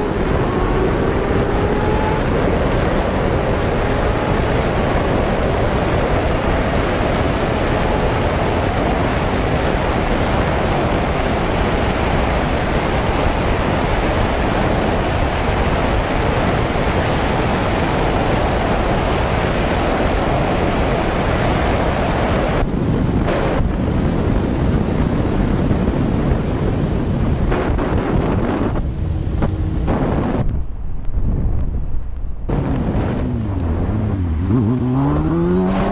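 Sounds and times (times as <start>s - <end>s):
wind noise on microphone: 0.0s - 35.9s.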